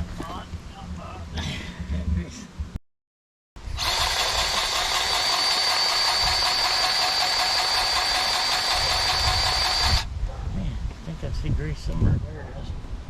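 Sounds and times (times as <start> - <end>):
motor whining: 3.6 - 10.1.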